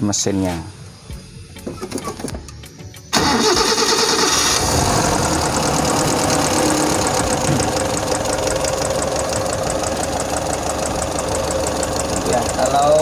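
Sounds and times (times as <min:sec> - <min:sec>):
petrol engine idling: 0:03.1 - 0:13.0.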